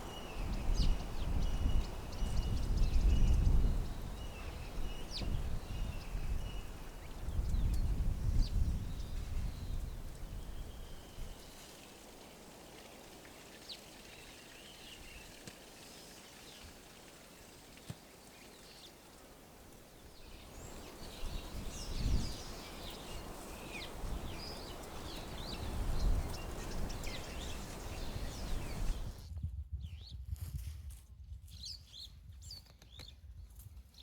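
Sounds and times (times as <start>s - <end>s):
background hiss: 0.0s - 29.2s
birds chirping: 0.0s - 29.2s.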